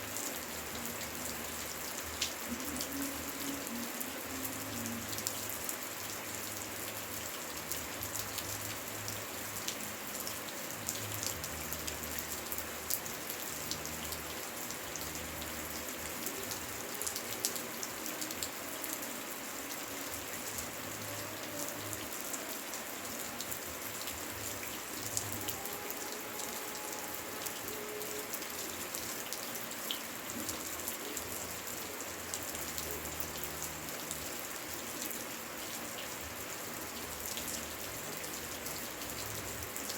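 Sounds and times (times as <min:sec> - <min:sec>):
rain falling: 0:00.0 - 0:39.9
raindrops ticking: 0:00.2 - 0:22.1.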